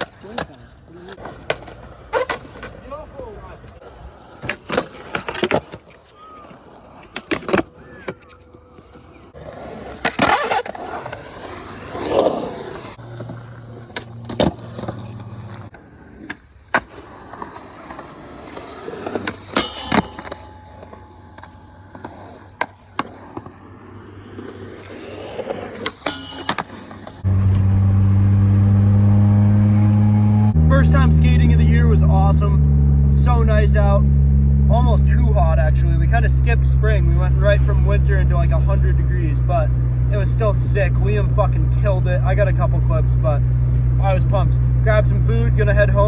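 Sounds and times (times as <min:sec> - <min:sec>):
skateboard rolling on pavement: 0:00.0 - 0:19.7, 0:20.3 - 0:30.0
skateboard popping and landing: 0:00.0 - 0:27.2.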